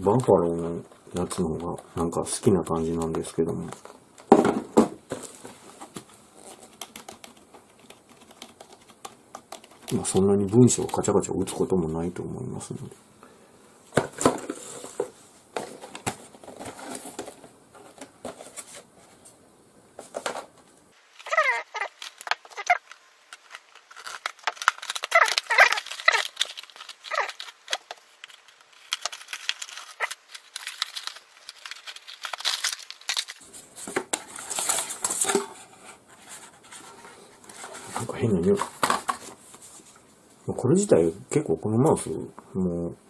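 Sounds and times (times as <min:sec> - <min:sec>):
clicks and rustles: 0:05.1 - 0:11.1, 0:20.0 - 0:35.6
paper and plastic tearing: 0:14.2 - 0:18.8, 0:20.1 - 0:35.7.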